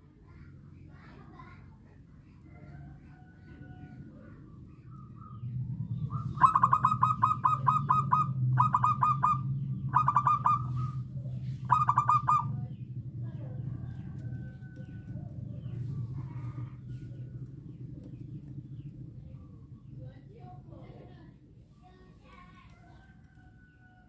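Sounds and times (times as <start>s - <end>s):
steady low hum: 0.0s - 24.0s
dove calling staccato notes: 4.9s - 12.9s.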